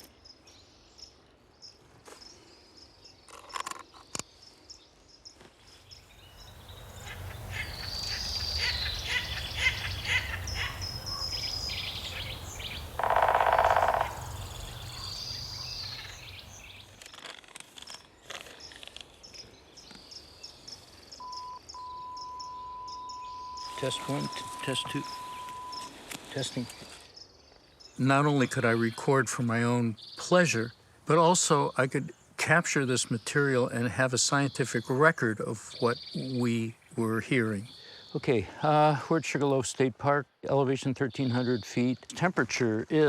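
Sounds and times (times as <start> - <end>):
insects chirping: 3.3 - 17.0, 20.4 - 27.5
birds calling: 5.9 - 17.0, 21.2 - 27.0
loud buzzing call: 12.0 - 16.2.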